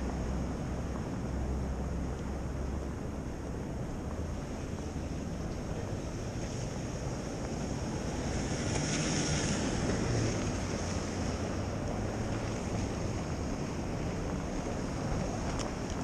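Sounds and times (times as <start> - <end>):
traffic rumble: 0.0 - 16.0
wind: 0.0 - 16.0
vehicle passing on slushy road: 3.9 - 16.0.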